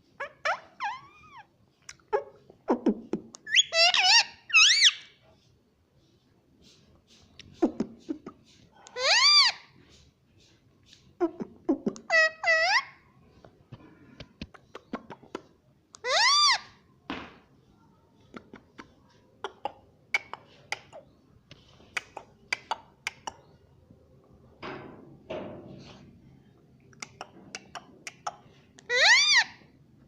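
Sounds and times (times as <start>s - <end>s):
parrot squawking: 3.5s - 5.1s, 8.9s - 9.6s, 16.0s - 16.7s, 28.8s - 29.6s.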